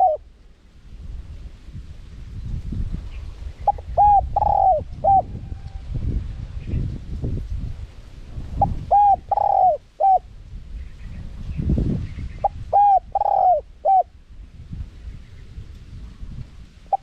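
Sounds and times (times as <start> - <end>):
dove cooing: 0.0 - 0.3, 3.6 - 5.9, 8.6 - 10.3, 12.4 - 14.1.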